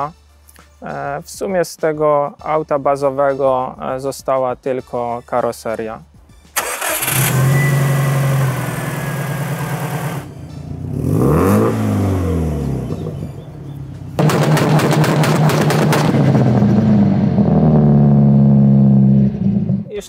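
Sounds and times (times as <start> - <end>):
car engine idling and revving: 6.6 - 19.9
exhaust crackles: 6.6 - 20.0.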